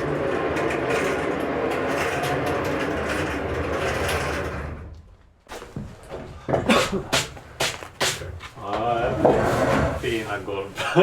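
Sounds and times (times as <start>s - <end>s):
woodworking machine milling boards: 0.0s - 4.9s.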